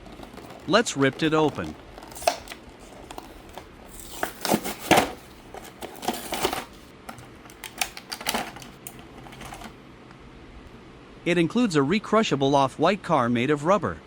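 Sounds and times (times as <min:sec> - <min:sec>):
card tearing: 0:00.0 - 0:09.7
plastic crinkling: 0:00.0 - 0:09.8.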